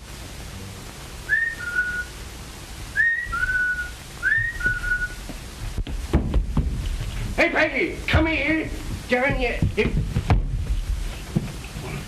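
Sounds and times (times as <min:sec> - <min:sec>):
person whistling two-note call: 0:01.3 - 0:02.1, 0:03.0 - 0:05.2.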